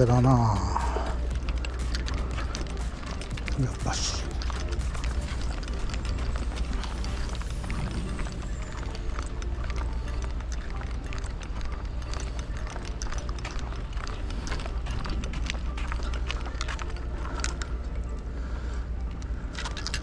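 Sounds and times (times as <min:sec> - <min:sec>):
sharp clicks and taps: 0:00.0 - 0:07.7
steady low rumble: 0:00.0 - 0:20.0.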